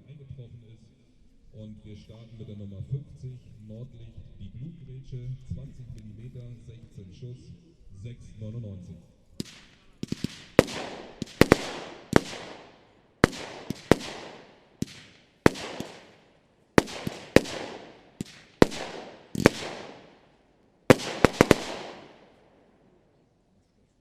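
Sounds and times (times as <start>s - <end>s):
firework bangs echoing: 9.4s - 22.4s.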